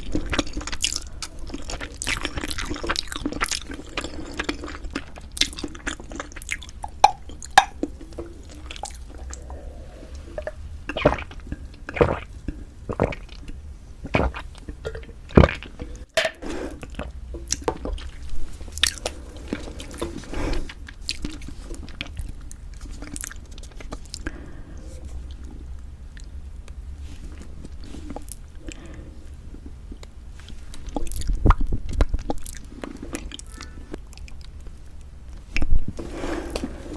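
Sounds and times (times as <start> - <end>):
person chewing and biting food: 0.0 - 16.1.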